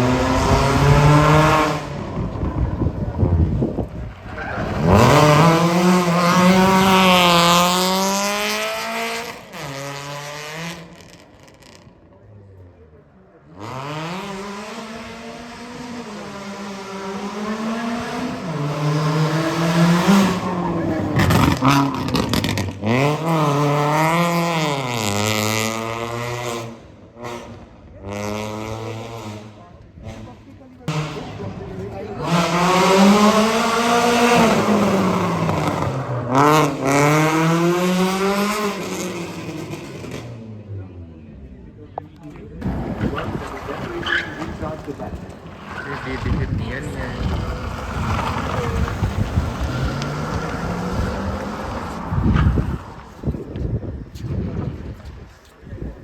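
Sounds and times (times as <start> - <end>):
car engine revving hard: 0.0 - 11.7, 13.5 - 40.6, 42.6 - 53.4
engine crackles: 16.6 - 25.8, 26.8 - 56.0
tyres squealing: 43.0 - 53.0.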